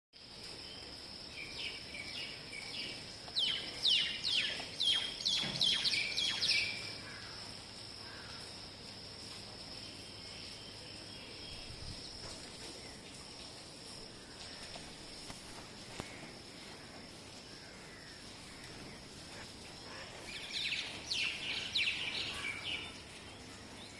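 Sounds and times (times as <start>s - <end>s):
bird chirping: 0.6s - 7.3s, 17.6s - 23.9s.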